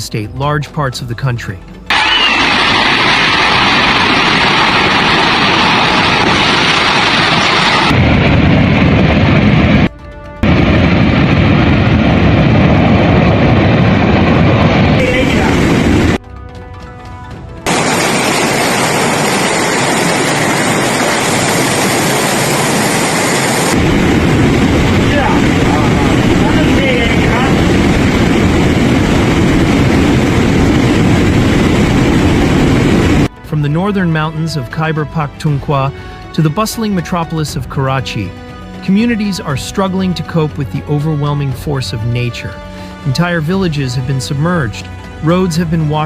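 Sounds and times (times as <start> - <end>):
floodwater rushing: 17.7 - 33.2.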